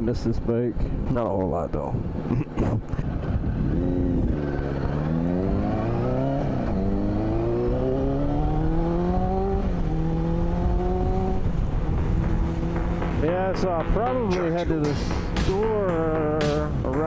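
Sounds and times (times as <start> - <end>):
motorcycle engine accelerating: 3.5 - 17.0.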